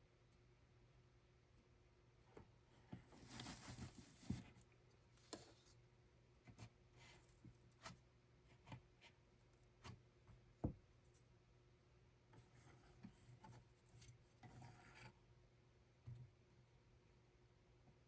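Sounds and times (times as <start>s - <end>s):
faint rustling: 2.8s - 5.8s.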